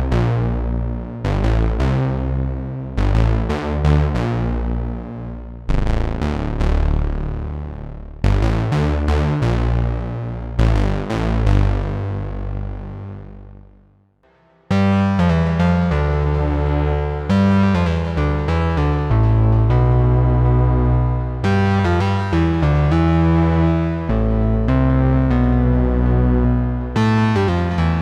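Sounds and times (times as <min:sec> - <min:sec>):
synthesizer bass chord ringing: 0:14.9 - 0:28.0.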